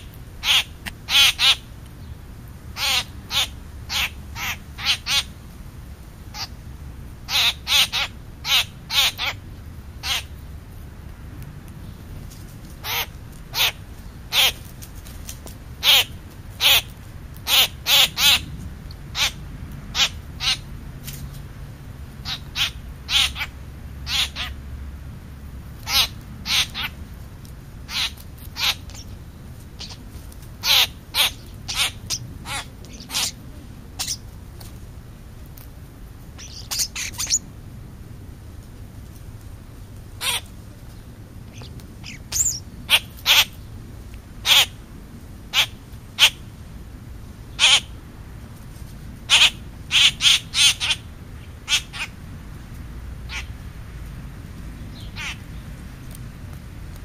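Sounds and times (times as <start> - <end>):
birds giving harsh caw-like calls: 0.0 - 1.8, 2.7 - 5.4, 6.3 - 6.6, 7.2 - 9.4, 10.0 - 10.4, 12.8 - 14.6, 15.8 - 20.7, 22.2 - 24.7, 25.8 - 27.0, 27.9 - 29.2, 29.8 - 30.0, 30.6 - 33.4, 34.0 - 34.2, 36.4 - 37.4, 40.2 - 40.5, 41.5 - 43.7, 44.4 - 44.8, 45.5 - 46.5, 47.5 - 48.0, 49.3 - 52.2, 53.3 - 53.6, 54.9 - 55.7.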